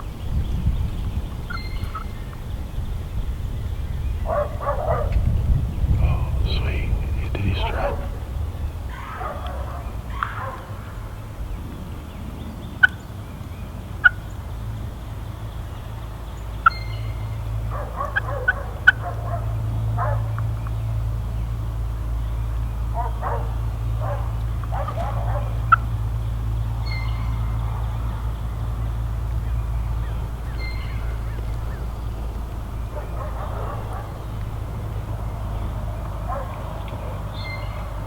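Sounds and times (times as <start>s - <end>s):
steady low rumble: 0.0s - 38.0s
turkey clucks: 1.5s - 2.1s, 6.0s - 11.1s, 14.0s - 14.3s, 17.7s - 20.8s, 22.9s - 38.0s
turkeys gobbling: 1.5s - 2.2s, 5.9s - 11.4s, 12.8s - 13.1s, 14.0s - 14.3s, 16.6s - 16.9s, 17.7s - 20.8s, 22.6s - 38.0s.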